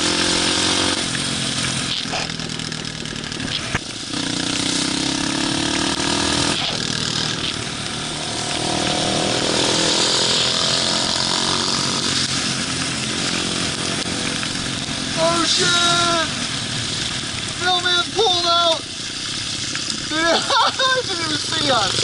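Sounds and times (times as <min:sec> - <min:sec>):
motorbike engine revving: 0:00.0 - 0:17.4.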